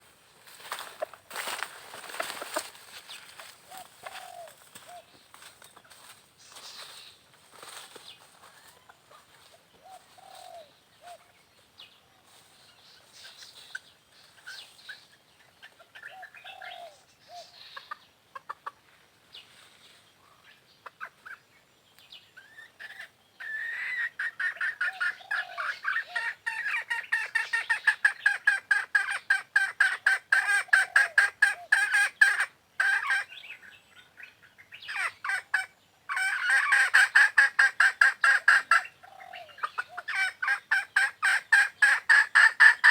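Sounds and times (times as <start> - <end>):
chicken clucking: 0.8 - 7.0, 12.2 - 19.5, 20.4 - 21.5, 22.4 - 33.3, 34.8 - 42.9.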